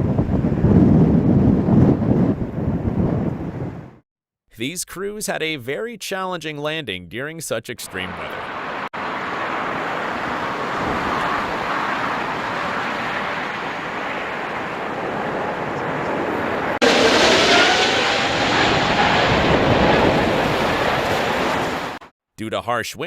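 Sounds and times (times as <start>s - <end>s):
gusty wind on microphone: 0.0s - 4.0s, 9.0s - 22.0s
jet airliner landing rumble: 7.9s - 22.0s.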